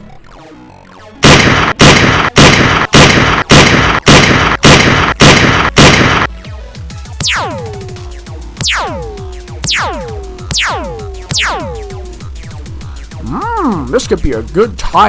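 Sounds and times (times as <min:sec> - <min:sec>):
gunfire sound effect blasts: 0:01.2 - 0:06.3, 0:07.2 - 0:12.2
electronic zaps falling in pitch: 0:07.2 - 0:12.6.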